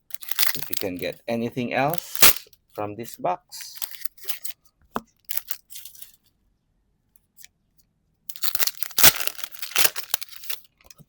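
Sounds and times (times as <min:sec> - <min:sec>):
foil wrapper tearing: 0:00.1 - 0:01.2, 0:01.8 - 0:02.5, 0:03.6 - 0:04.5, 0:05.3 - 0:06.1, 0:08.3 - 0:10.7
foil wrapper rustling: 0:00.1 - 0:02.5, 0:03.6 - 0:04.5, 0:05.3 - 0:06.2, 0:08.3 - 0:10.8.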